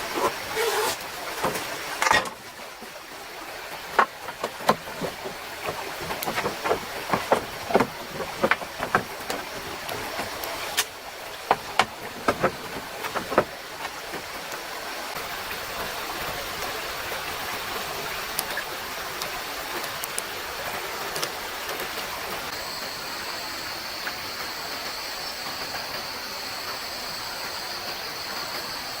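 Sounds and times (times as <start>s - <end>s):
flowing stream: 0.0s - 29.0s
sharp knocks and clacks: 3.9s - 14.3s.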